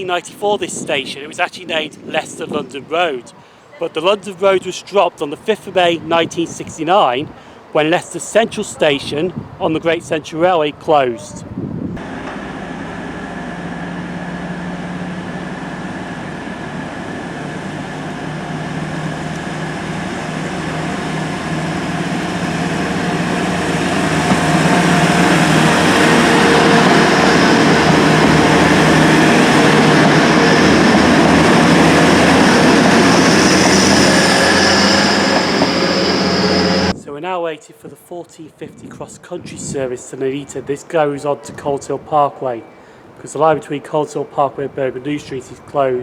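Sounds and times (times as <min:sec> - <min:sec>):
diesel train rumbling: 0:11.5 - 0:37.0
train engine drone: 0:12.0 - 0:37.0.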